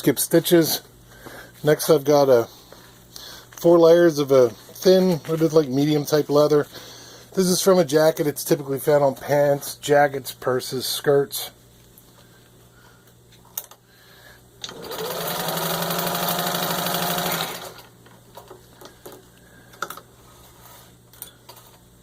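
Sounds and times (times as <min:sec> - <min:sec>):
sewing machine running: 0:14.6 - 0:17.9.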